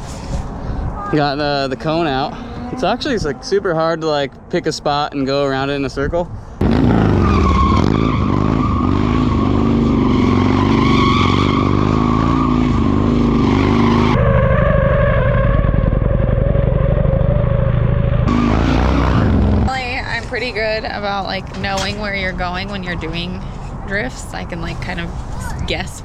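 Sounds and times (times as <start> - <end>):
motorcycle engine at high revs: 6.6 - 20.0.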